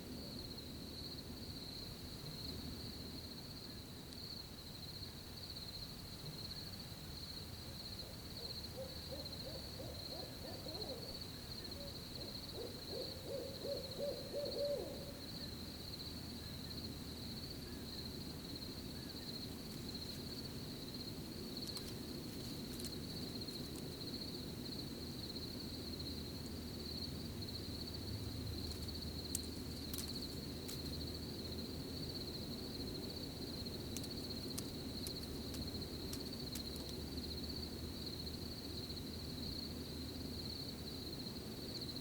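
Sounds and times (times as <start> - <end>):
crickets trilling: 0.0 - 42.0
owl hooting: 8.0 - 15.5.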